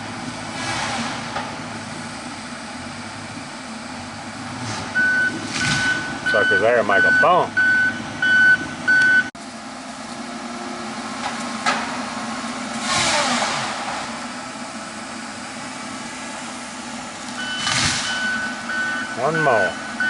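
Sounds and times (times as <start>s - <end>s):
diesel engine running: 0.0s - 20.0s
reverse alarm beeping: 5.0s - 9.3s, 17.4s - 20.0s.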